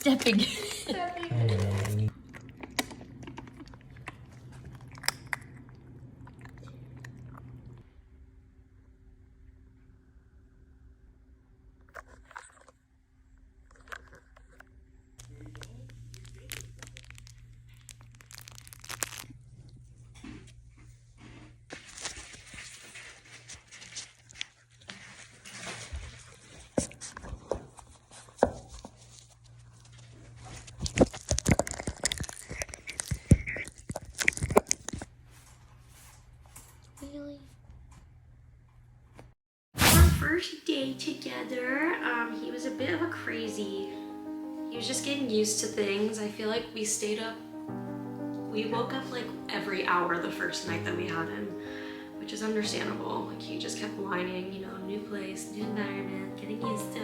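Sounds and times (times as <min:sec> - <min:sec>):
puppy crunching food: 0:01.3 - 0:07.8, 0:13.7 - 0:14.6, 0:15.2 - 0:20.4, 0:29.9 - 0:35.1.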